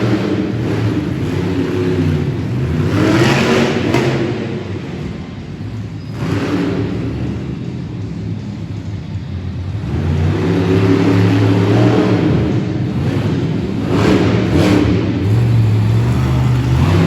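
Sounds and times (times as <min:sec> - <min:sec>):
monster truck engine revving: 0:00.0 - 0:08.0, 0:09.6 - 0:17.0.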